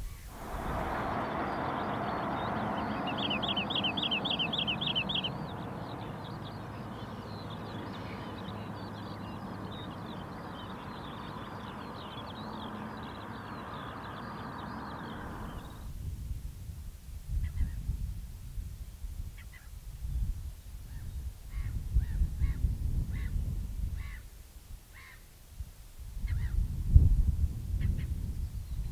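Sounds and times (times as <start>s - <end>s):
high bird chirping: 0.1s - 15.9s.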